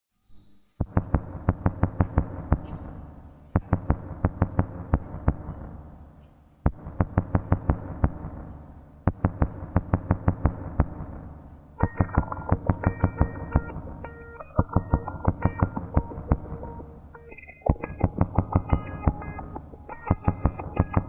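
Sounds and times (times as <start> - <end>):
sharp rhythmic clicks: 0.8 - 2.9, 3.6 - 5.6, 9.0 - 11.1, 11.8 - 21.0.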